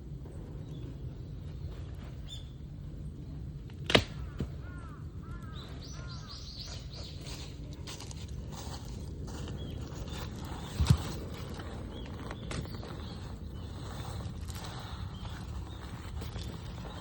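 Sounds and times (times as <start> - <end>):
low outdoor rumble: 0.0 - 17.0
birds chirping: 0.2 - 17.0
sharp crack: 3.6 - 4.7.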